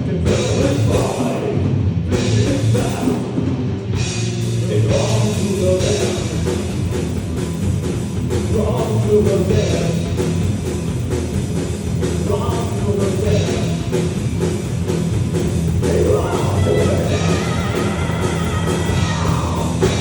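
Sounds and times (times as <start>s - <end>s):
rock band playing live: 0.0s - 20.0s
drum kit beat: 0.1s - 20.0s
person singing: 2.2s - 3.4s, 4.6s - 6.4s, 15.8s - 20.0s.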